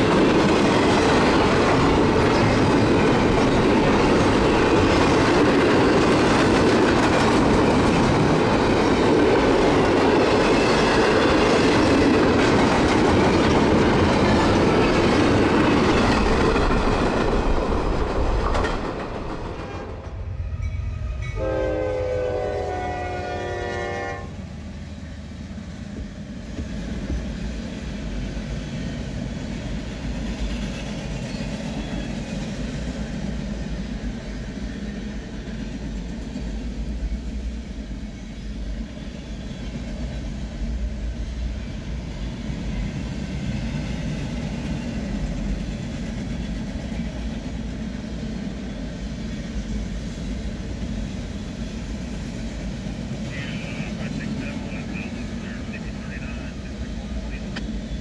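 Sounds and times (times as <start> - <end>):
freight train wheels clattering: 0.0 - 21.5
train horn blast: 21.1 - 24.5.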